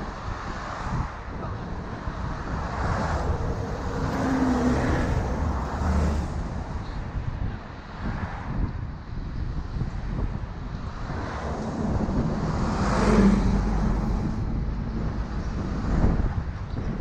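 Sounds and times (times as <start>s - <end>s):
street traffic passing: 0.0s - 17.0s
wind rumble on microphone: 0.0s - 17.0s.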